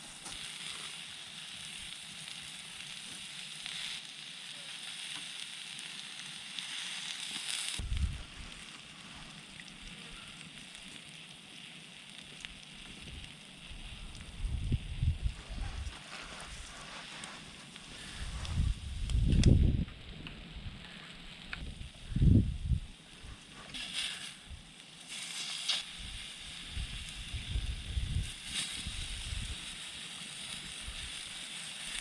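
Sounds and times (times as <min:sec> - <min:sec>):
food sizzling on a griddle: 0:00.0 - 0:32.0
low rumbles: 0:07.8 - 0:08.6, 0:18.2 - 0:23.3.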